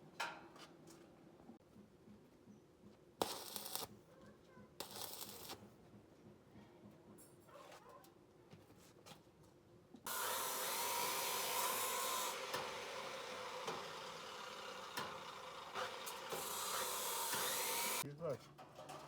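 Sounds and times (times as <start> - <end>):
power tool whining: 10.1 - 18.0.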